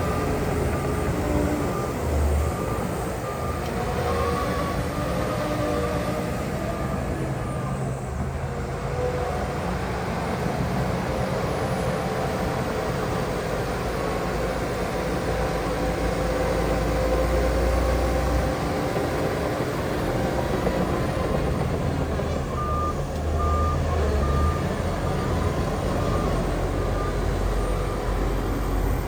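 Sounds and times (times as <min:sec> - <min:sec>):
diesel engine rumble: 0:05.5 - 0:29.0.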